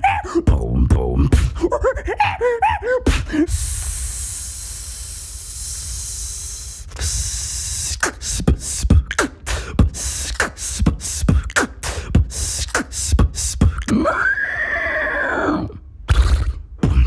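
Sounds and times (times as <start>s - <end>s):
beatbox kick and snare: 0.5s - 1.7s, 3.1s - 14.0s, 16.1s - 17.0s
breathy beatbox hiss: 3.1s - 14.0s, 16.1s - 17.0s.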